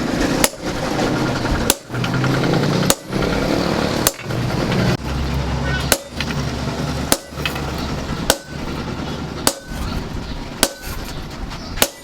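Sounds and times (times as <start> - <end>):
low hum: 0.0 - 11.8
hammer striking steel: 0.2 - 4.5, 5.6 - 6.4, 7.0 - 8.8, 9.4 - 9.9, 10.6 - 11.2, 11.8 - 12.0.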